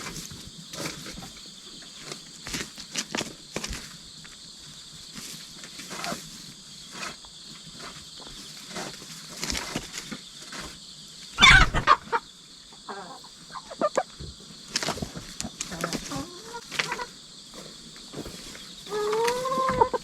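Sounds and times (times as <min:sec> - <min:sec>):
insect chirring: 0:00.0 - 0:20.0
hens clucking: 0:11.4 - 0:20.0.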